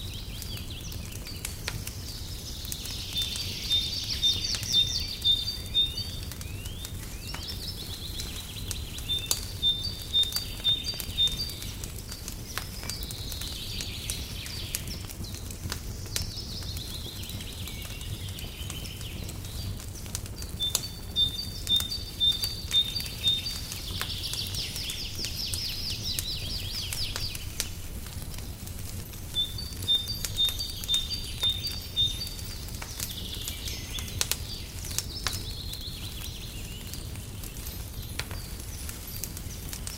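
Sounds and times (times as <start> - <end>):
bird singing: 0.0 - 28.6, 29.2 - 39.9
fireplace crackling: 0.0 - 39.9.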